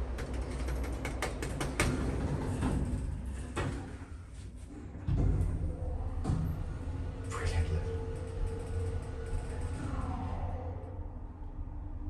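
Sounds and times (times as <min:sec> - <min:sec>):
lift doors clicking and rattling: 0:00.0 - 0:07.3
steady low hum: 0:02.0 - 0:12.0.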